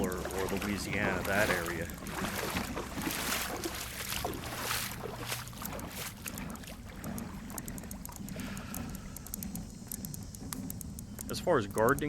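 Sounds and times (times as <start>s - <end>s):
wading through water: 0.0s - 12.0s.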